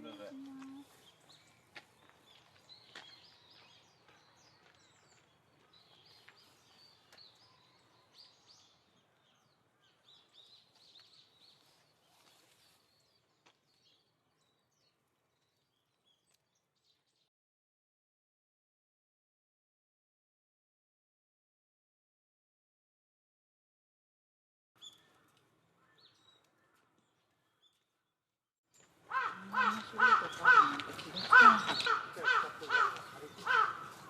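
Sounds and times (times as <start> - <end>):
outdoor background noise: 0.0 - 17.3, 24.8 - 34.0
songbirds chirping: 0.0 - 17.3, 24.8 - 34.0.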